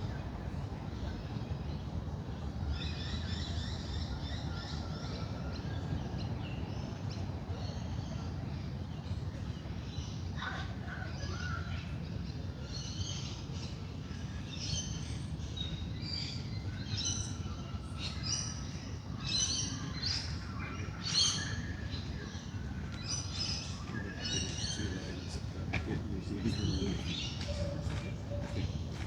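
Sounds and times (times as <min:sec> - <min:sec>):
birds chirping: 0:14.7 - 0:29.0.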